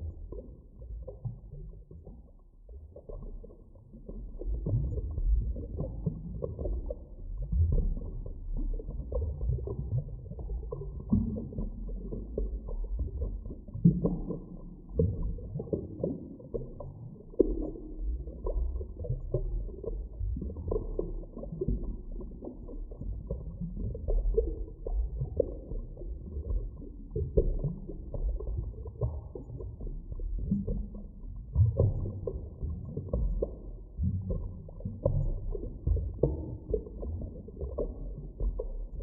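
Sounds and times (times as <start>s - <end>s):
deep underwater rumble: 0.0s - 39.0s.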